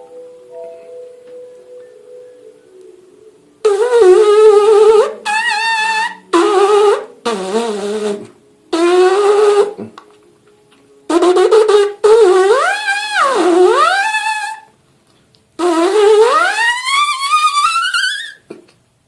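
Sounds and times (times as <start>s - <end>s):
trumpet-style lip buzz: 3.6s - 10.0s, 11.1s - 14.8s, 15.6s - 18.5s.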